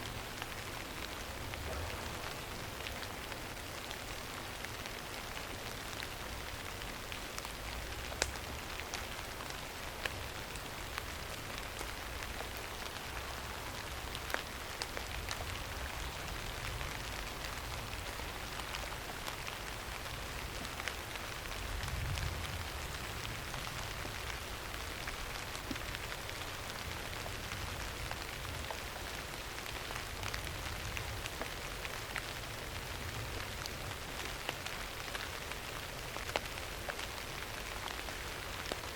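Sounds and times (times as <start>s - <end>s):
steady rain hiss: 0.0s - 38.9s
low rumble: 1.5s - 3.5s.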